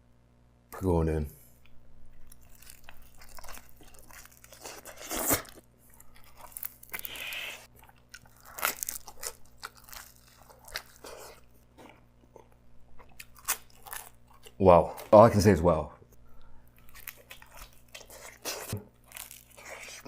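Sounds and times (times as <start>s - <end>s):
chewing pizza: 1.6s - 15.3s, 16.3s - 20.0s
crust crunching: 2.2s - 7.1s, 7.7s - 15.1s.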